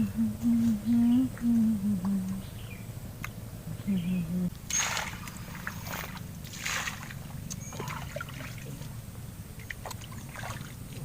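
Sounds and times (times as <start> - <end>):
steady low rumble: 0.0 - 11.0
water sloshing and splashing: 4.6 - 11.0.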